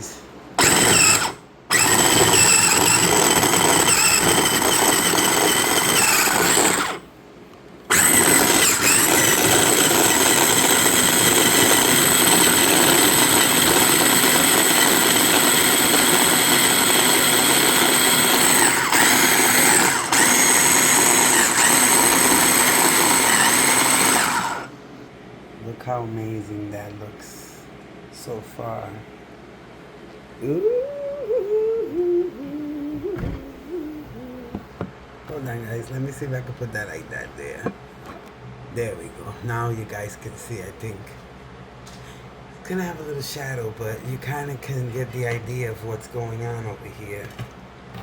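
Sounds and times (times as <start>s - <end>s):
electric food chopper running: 0.6s - 7.1s, 7.9s - 24.7s.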